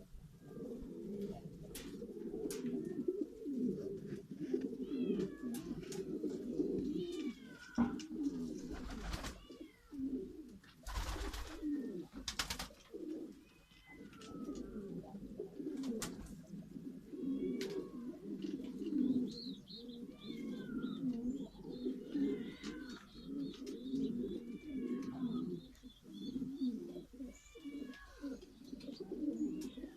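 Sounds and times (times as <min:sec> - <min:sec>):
pigeons cooing: 0:00.0 - 0:29.9.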